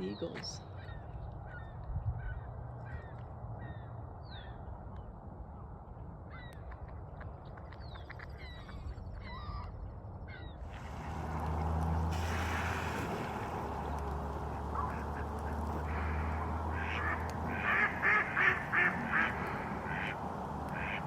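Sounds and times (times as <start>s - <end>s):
seagulls calling: 0.0s - 4.6s, 7.9s - 21.0s
steady rushing noise: 10.7s - 21.0s.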